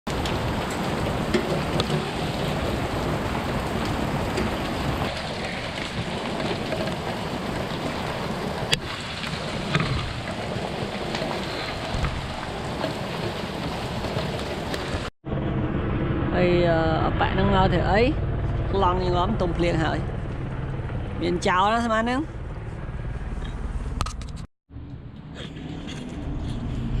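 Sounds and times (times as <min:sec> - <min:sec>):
hail ticking: 0:00.1 - 0:15.1
heavy rain on hard surfaces: 0:00.1 - 0:15.1.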